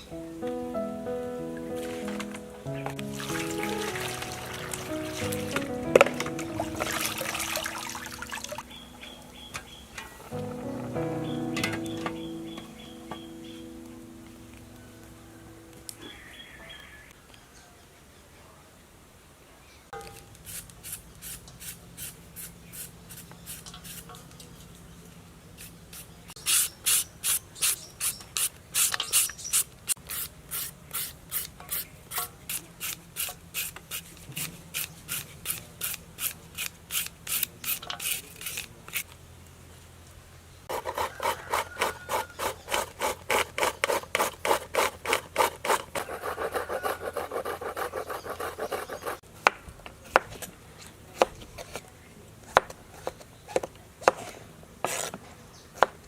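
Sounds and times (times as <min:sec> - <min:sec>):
papaya being scraped by hand: 0:20.0 - 0:24.3, 0:25.6 - 0:39.1, 0:40.7 - 0:49.2, 0:52.5 - 0:55.2.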